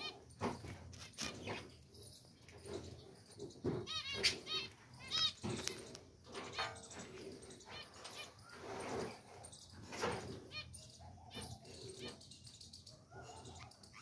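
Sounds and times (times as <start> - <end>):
budgerigars chirping: 3.9 - 5.4.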